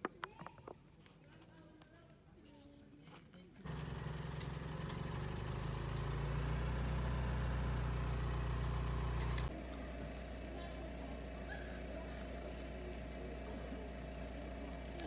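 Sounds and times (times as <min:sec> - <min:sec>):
car engine idling: 0:03.6 - 0:15.0.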